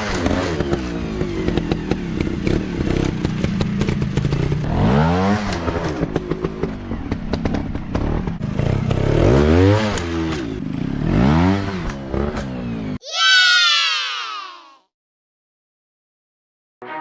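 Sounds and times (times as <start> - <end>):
dirt bike engine revving: 0.0 - 12.9.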